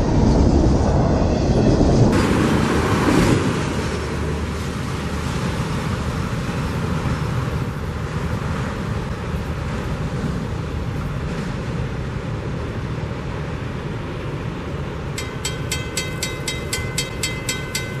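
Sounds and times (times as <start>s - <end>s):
freight train rumbling: 0.0s - 18.0s
crossing bell ringing: 15.2s - 18.0s.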